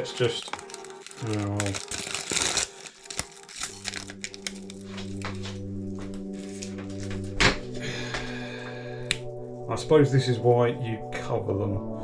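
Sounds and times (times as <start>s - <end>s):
plastic wrapper crinkling: 0.0s - 7.4s
soft background music: 0.0s - 12.0s.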